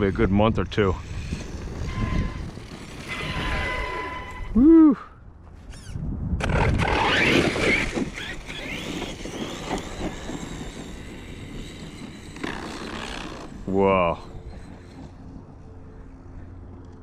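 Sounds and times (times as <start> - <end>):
wind buffeting microphone: 0.0 - 16.8
electric motor whining: 1.0 - 4.6, 5.8 - 16.1
rattly drivetrain: 6.5 - 16.1.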